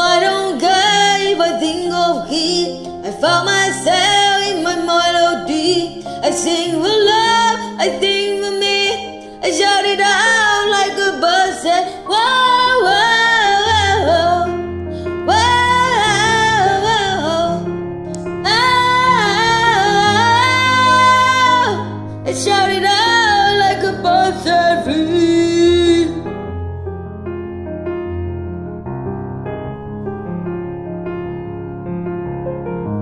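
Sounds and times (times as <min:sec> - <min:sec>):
karaoke backing track: 0:00.0 - 0:26.6
person singing long wavering notes: 0:18.4 - 0:26.5
bass line: 0:22.9 - 0:33.0.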